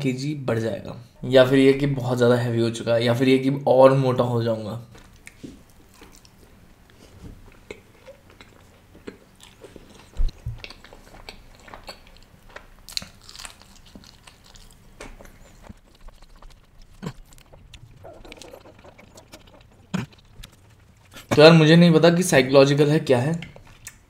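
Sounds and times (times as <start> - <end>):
man chewing and mouth smacks: 4.9 - 21.4, 23.4 - 24.0.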